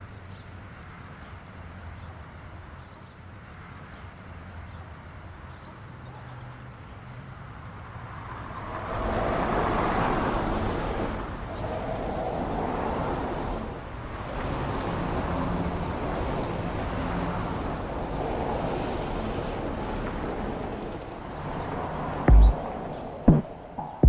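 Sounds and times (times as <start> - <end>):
traffic rumble: 7.9 - 24.0.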